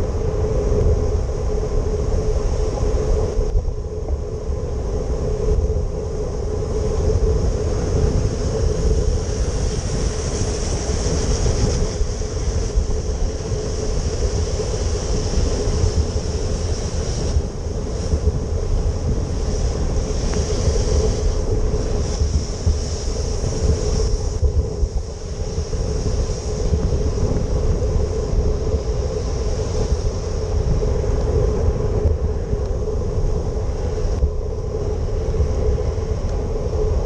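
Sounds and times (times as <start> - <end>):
steady hum: 0.0 - 37.0
wind rumble on microphone: 0.0 - 37.0
tyres hissing on wet pavement: 7.9 - 31.5.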